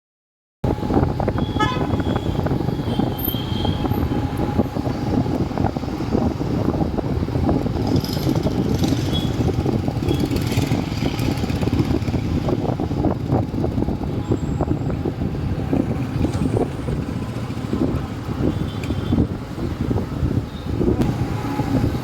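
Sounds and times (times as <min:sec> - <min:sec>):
motorcycle engine: 0:00.8 - 0:05.3, 0:07.6 - 0:14.3.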